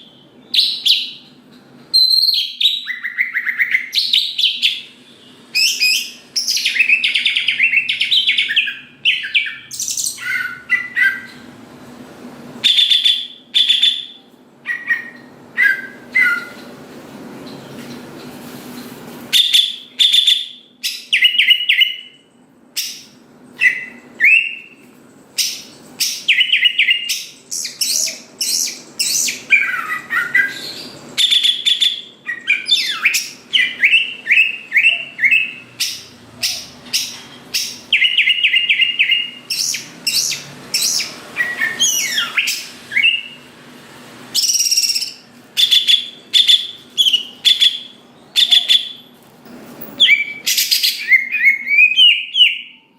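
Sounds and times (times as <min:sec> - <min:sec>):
bird singing chattering notes: 0:25.4 - 0:43.4.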